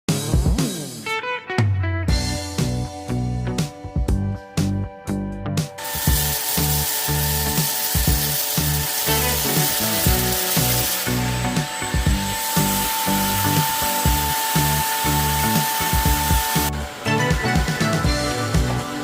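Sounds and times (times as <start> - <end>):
background music with beat: 0.1 - 19.0
stick vacuum running: 5.8 - 19.0.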